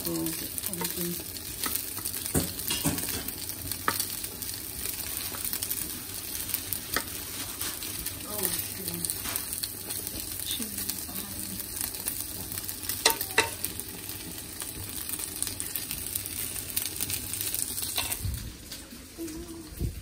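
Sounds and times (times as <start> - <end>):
food sizzling in a frying pan: 0.0 - 20.0.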